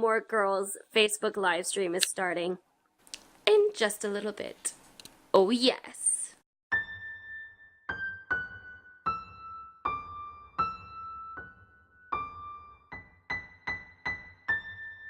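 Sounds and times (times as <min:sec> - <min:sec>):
slow piano-like melody: 0:06.7 - 0:15.0.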